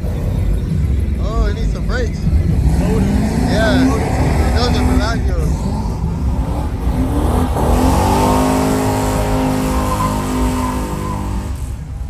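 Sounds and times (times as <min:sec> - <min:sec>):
car engine revving: 0:00.0 - 0:12.0
steady low rumble: 0:00.0 - 0:12.0.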